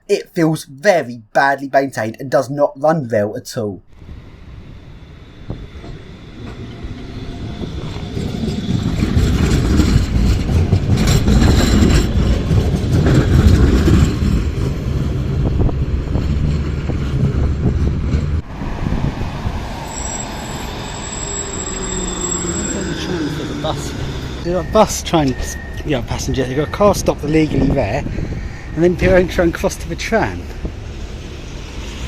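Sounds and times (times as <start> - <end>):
person narrating: 0.0 - 3.8
rail vehicle with falling whine: 4.0 - 13.1, 13.8 - 25.8, 30.6 - 32.0.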